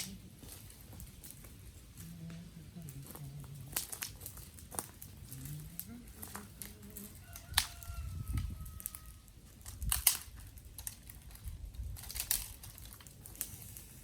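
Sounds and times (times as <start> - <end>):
twigs snapping: 3.0 - 13.6.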